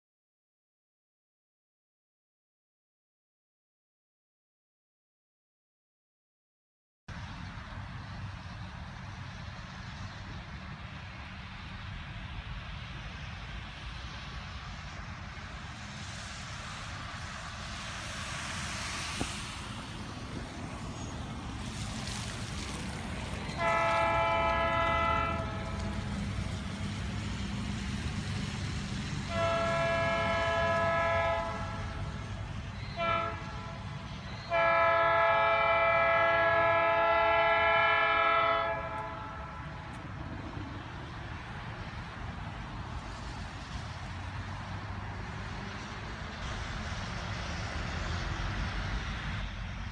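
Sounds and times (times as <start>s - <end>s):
train rumbling: 7.1s - 49.9s
locomotive air horn blasts: 23.5s - 26.0s, 29.3s - 32.2s, 32.9s - 39.9s.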